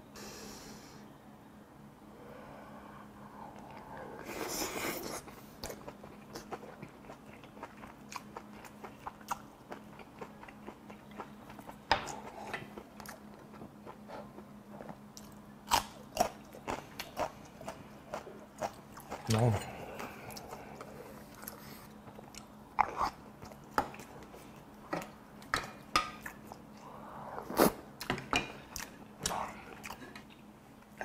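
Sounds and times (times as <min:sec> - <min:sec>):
close chewing with mouth clicks: 0:03.6 - 0:25.1, 0:28.7 - 0:31.0.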